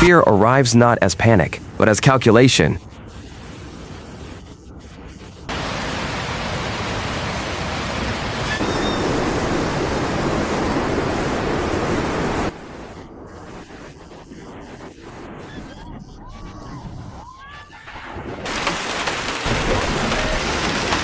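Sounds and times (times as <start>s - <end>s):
rushing water: 5.5s - 13.0s, 17.8s - 21.0s.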